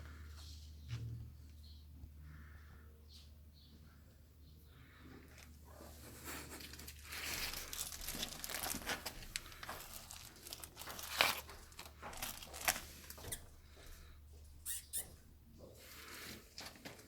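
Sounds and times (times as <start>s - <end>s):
crinkly rustling and scuffling: 5.2s - 14.1s, 15.6s - 17.0s.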